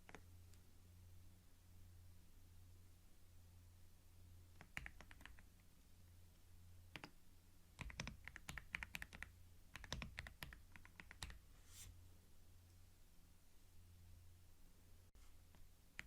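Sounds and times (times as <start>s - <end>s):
low steady hum: 0.0s - 16.0s
computer keyboard typing: 4.5s - 5.5s, 6.9s - 7.2s, 7.8s - 11.4s.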